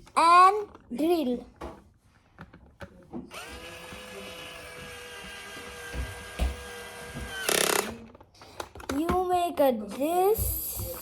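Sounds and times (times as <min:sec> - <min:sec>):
electric drill whining: 0:03.3 - 0:08.1.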